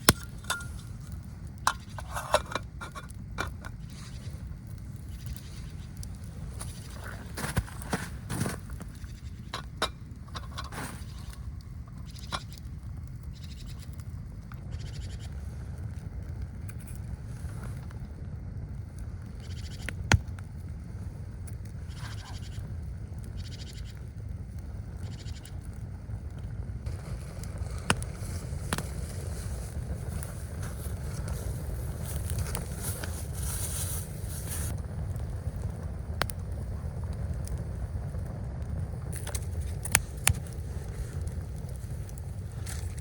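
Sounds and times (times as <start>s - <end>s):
blizzard wind rumble: 0.0s - 43.0s
rustling hiss: 10.1s - 13.9s, 26.8s - 37.9s.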